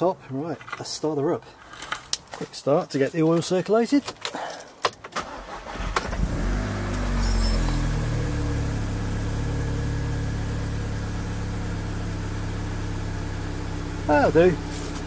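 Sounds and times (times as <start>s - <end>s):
car engine starting and idling: 5.0s - 15.0s.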